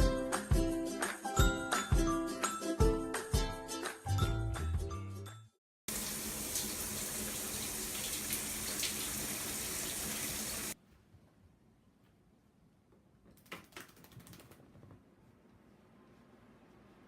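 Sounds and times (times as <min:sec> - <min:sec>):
light music: 0:00.0 - 0:05.6
running water spray: 0:05.9 - 0:10.8.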